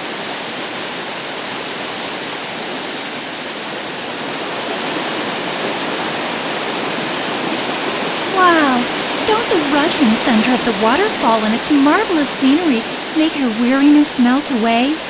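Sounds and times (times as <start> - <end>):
waterfall rushing: 8.1 - 15.0.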